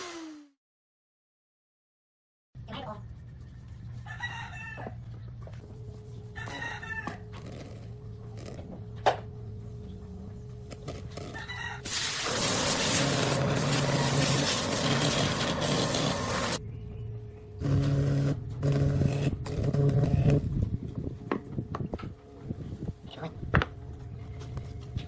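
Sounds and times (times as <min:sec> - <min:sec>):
rooster crowing: 0:04.0 - 0:05.0, 0:06.3 - 0:07.6, 0:11.2 - 0:11.9
low steady hum: 0:04.9 - 0:11.8, 0:16.6 - 0:25.0.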